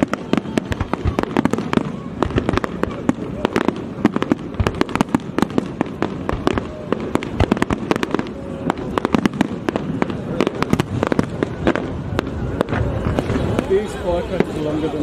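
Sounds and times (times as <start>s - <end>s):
fireworks cracking and popping: 0.0s - 15.0s.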